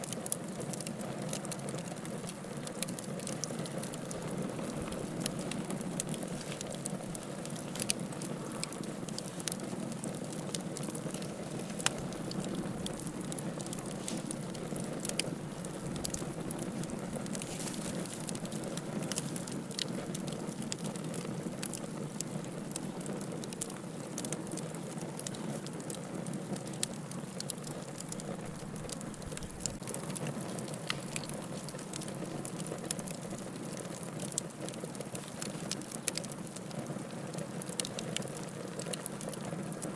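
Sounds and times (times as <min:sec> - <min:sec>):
fire crackles and pops: 0:00.0 - 0:39.9
wood fire burning: 0:00.0 - 0:39.9.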